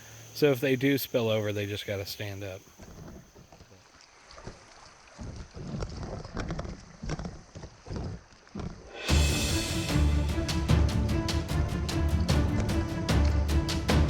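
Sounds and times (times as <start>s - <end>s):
paddle and water knocking hull: 2.7s - 14.0s
music with a beat: 9.1s - 14.0s.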